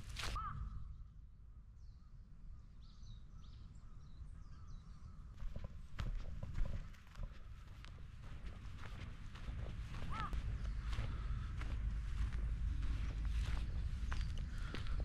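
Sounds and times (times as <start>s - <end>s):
faint birds chirping: 0.1s - 15.0s
footsteps: 5.4s - 15.0s.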